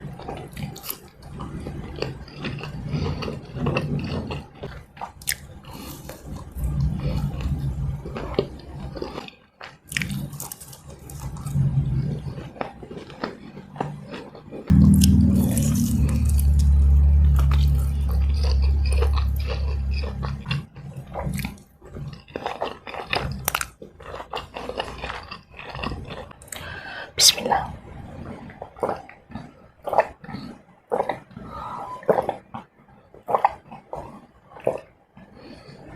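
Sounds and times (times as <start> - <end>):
chewing food: 0.0 - 27.0, 28.3 - 35.9
low steady drone: 14.7 - 20.7.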